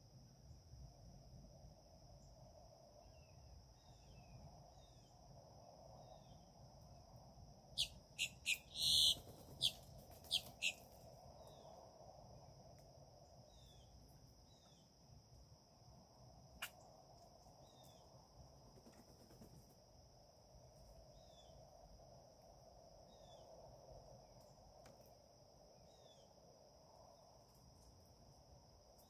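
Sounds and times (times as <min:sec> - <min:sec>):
sharp high bird calls: 0:07.8 - 0:10.8.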